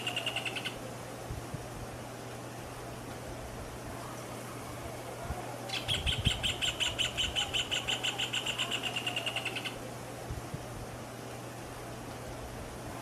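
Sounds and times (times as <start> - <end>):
bird calling sharp notes: 0.0 - 0.8, 5.7 - 9.8.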